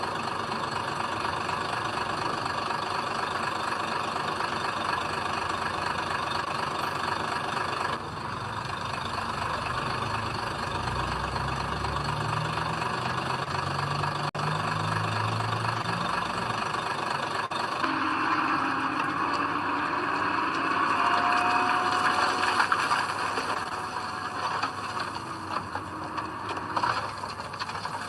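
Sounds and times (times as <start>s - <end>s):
heavy diesel engine running: 0.0s - 28.0s
high steady whine: 17.5s - 27.5s.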